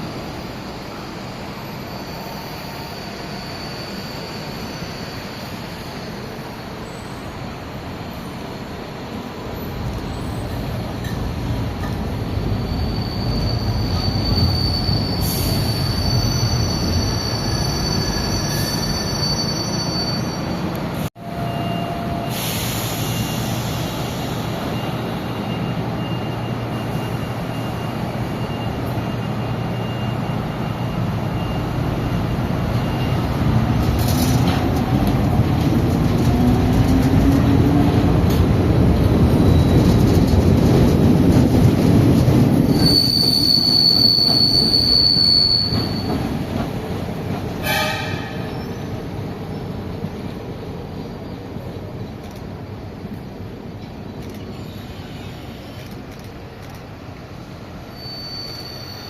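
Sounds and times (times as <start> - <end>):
train running on rails: 0.0 - 59.0
high-pitched wheel squeal: 1.5 - 7.2, 12.4 - 23.6, 42.7 - 46.3, 57.9 - 59.0.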